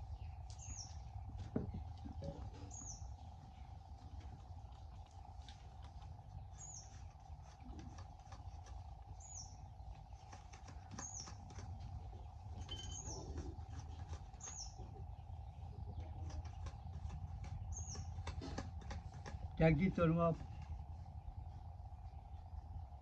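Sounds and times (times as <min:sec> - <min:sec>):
bird chirping: 0:00.0 - 0:22.8
faint hum: 0:00.0 - 0:23.0.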